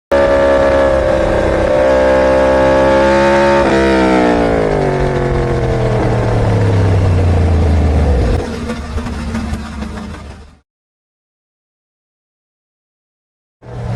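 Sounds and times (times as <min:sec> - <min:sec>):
motorcycle engine at high revs: 0:00.1 - 0:10.6.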